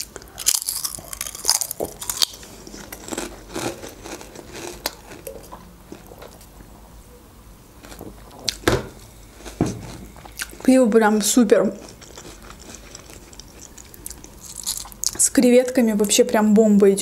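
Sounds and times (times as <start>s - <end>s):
crunching potato chip: 0.0s - 5.3s, 11.8s - 15.2s.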